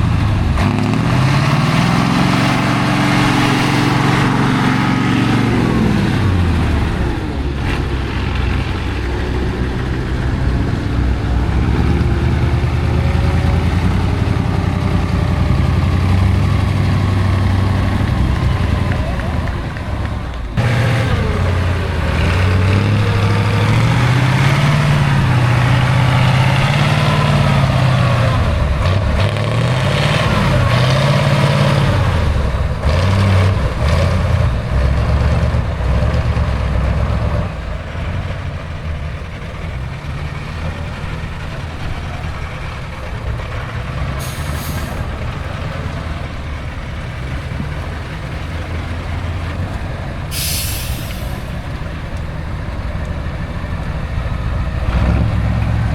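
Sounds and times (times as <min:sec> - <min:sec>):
diesel truck engine working hard: 0:00.0 - 0:55.9
short hisses: 0:44.2 - 0:45.1, 0:50.3 - 0:51.6.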